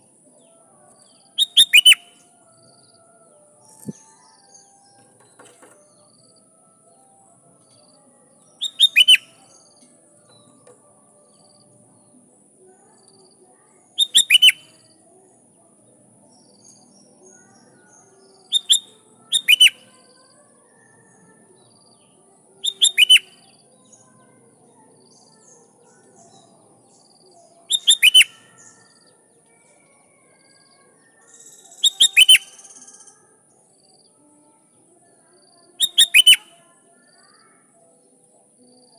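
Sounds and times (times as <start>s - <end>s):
bird calling descending notes: 1.4s - 2.1s, 8.6s - 9.3s, 22.6s - 23.2s, 27.7s - 28.3s.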